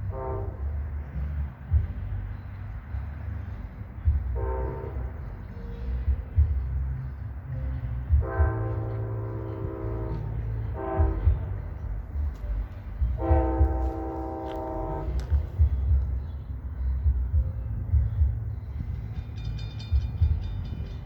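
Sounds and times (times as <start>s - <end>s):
locomotive multi-chime horn: 0.0s - 0.9s, 4.4s - 5.3s, 8.2s - 11.7s, 13.2s - 15.6s
low rumble of passing train: 0.0s - 21.0s.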